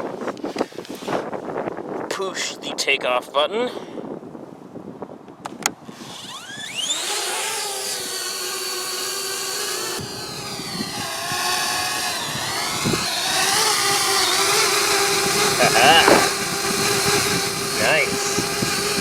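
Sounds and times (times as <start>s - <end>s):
drone motors whining: 5.9s - 19.0s
sharp clicks: 16.0s - 16.5s.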